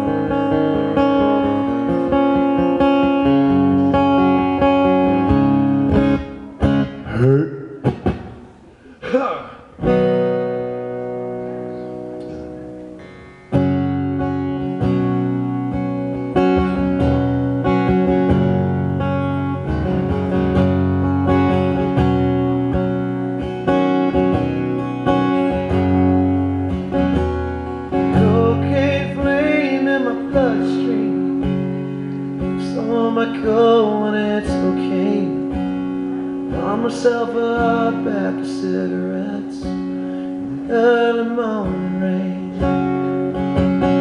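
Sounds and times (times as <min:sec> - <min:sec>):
acoustic guitar strumming: 0:00.0 - 0:44.0
man singing: 0:07.0 - 0:07.9, 0:28.0 - 0:31.6, 0:32.4 - 0:35.7, 0:36.5 - 0:43.1.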